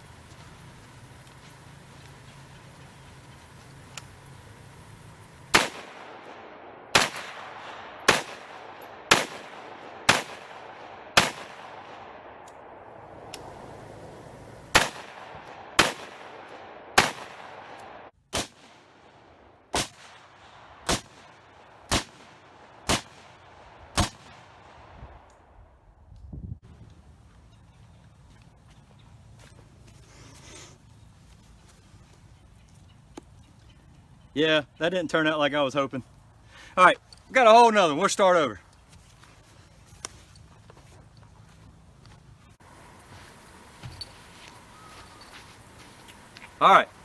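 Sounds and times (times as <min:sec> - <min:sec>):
rifle shots: 0:05.3 - 0:13.6, 0:14.6 - 0:24.9.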